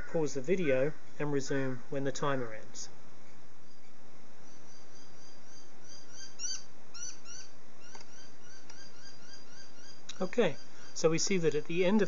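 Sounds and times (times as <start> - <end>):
steady hiss: 0.0 - 12.0
small bird chirping: 3.2 - 12.0.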